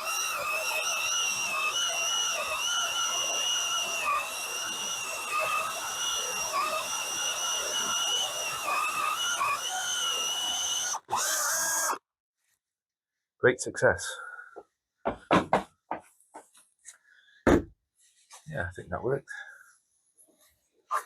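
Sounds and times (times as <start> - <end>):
power drill with hole saw cutting wood: 0.0 - 12.0.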